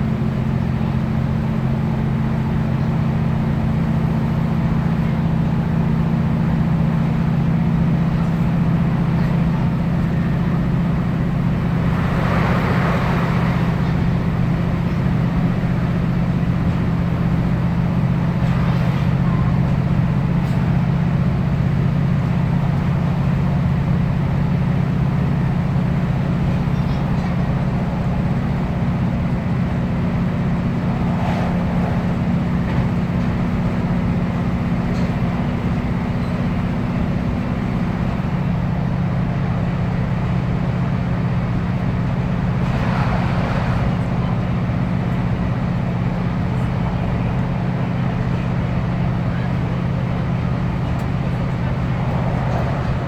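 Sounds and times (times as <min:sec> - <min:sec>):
diesel engine drone: 0:00.0 - 0:53.0
wheels rumbling on rail: 0:00.0 - 0:53.0.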